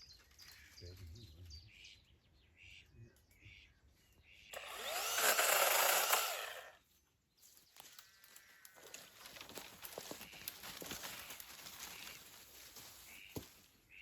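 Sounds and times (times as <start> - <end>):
small power tool motor: 4.5 - 6.8.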